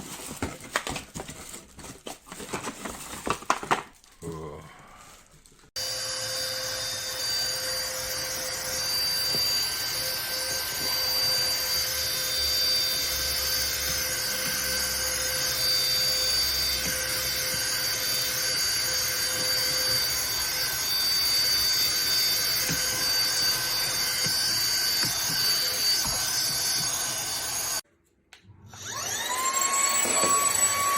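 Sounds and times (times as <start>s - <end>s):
vacuum cleaner motor whining: 5.8s - 27.8s, 28.7s - 30.9s.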